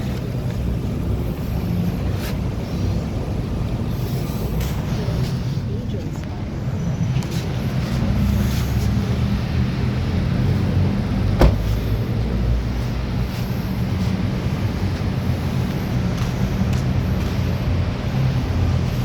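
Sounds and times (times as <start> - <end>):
car engine running: 9.4 - 19.0.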